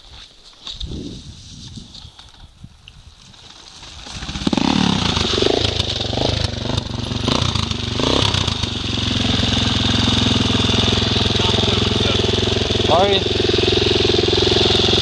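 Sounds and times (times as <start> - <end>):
dirt bike engine revving: 3.8 - 15.0.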